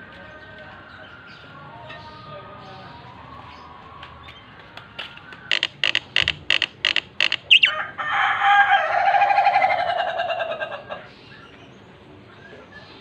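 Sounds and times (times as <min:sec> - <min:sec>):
bird calling: 0:05.5 - 0:07.8.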